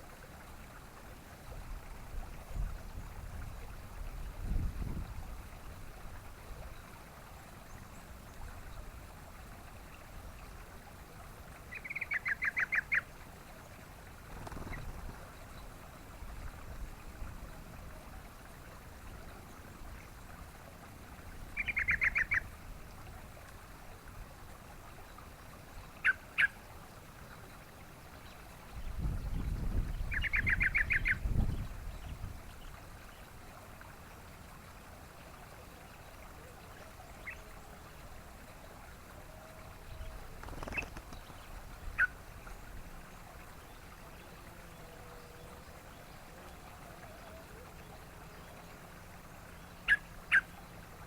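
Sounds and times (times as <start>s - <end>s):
faint steady hiss: 0.0s - 51.0s
bird bubbling calls: 11.5s - 16.0s, 21.4s - 22.6s, 25.8s - 26.7s, 29.8s - 32.8s, 35.6s - 38.0s, 39.1s - 51.0s.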